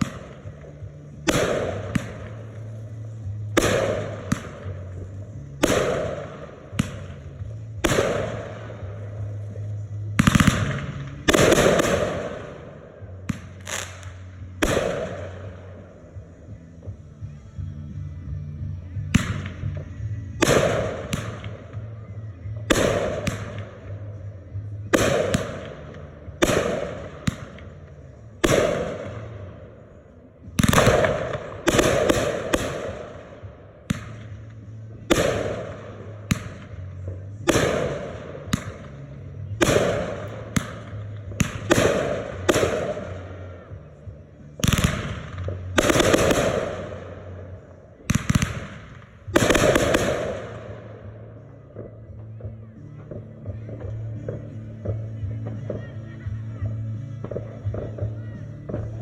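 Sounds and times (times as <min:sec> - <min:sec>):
firework crackle: 0:00.0 - 0:16.8
firework bangs: 0:00.0 - 0:16.9, 0:19.0 - 0:21.9, 0:22.5 - 0:29.9, 0:30.5 - 0:43.9, 0:44.5 - 0:59.0.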